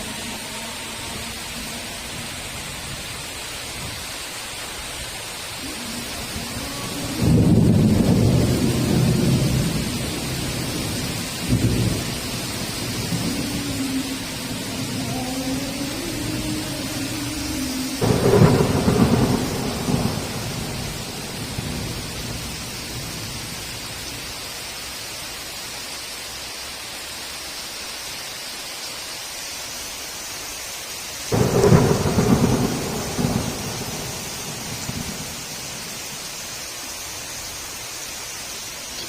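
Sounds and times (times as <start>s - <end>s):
heavy rain: 0.0s - 39.0s
thunder clap rolling: 5.6s - 23.2s, 31.3s - 36.2s.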